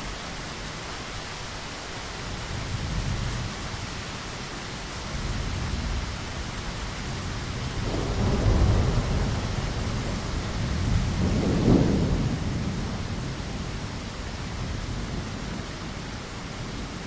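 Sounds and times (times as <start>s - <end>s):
steady rain hiss: 0.0s - 17.0s
low rumbling thunder: 5.1s - 15.8s.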